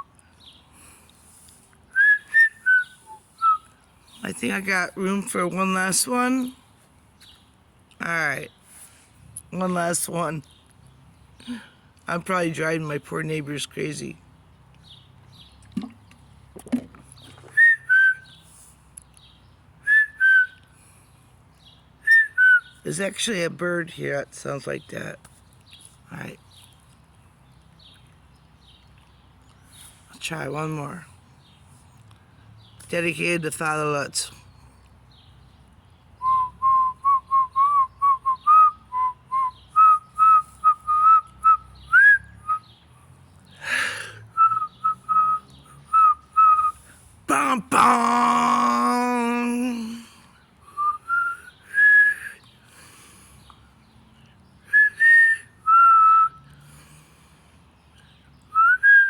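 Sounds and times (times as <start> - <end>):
person whistling a tune: 1.9 - 3.7, 17.5 - 18.4, 19.9 - 20.6, 36.2 - 42.6, 50.7 - 52.4, 54.7 - 56.4, 58.6 - 59.0.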